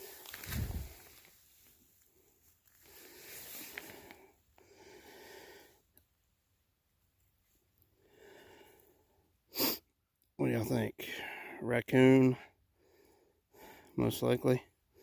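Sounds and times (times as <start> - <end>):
person breathing close: 2.7 - 5.9.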